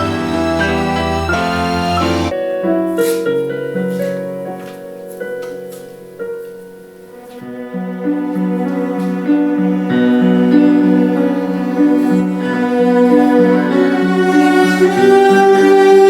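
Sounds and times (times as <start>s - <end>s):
cellos playing: 0.0s - 2.4s, 7.0s - 16.0s
piano chords: 0.0s - 16.0s.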